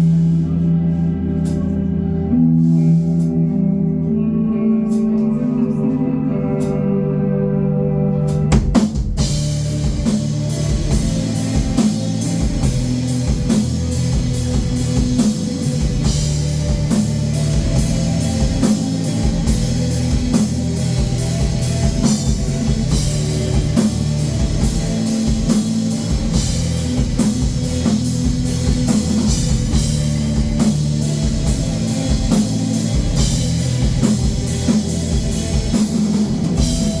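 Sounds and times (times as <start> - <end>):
electric guitar: 0.0 - 37.0
drum kit beat: 8.3 - 37.0.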